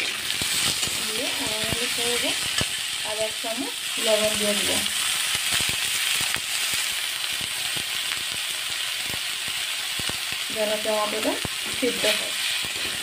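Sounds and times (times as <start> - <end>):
food sizzling in oil: 0.0 - 13.0
metal spatula scraping a pan: 11.7 - 13.0.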